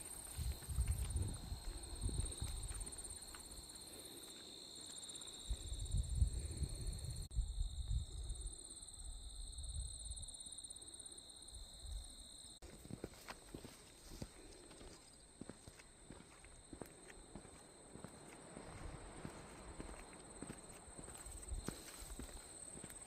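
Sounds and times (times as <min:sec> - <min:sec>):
footsteps on dirt trail: 0:00.0 - 0:05.8, 0:12.6 - 0:23.0
insects droning: 0:00.0 - 0:23.0.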